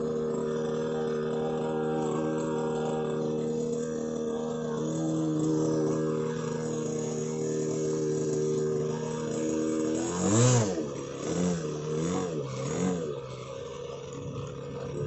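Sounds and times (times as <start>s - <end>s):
model plane engine drone: 0.0s - 15.0s.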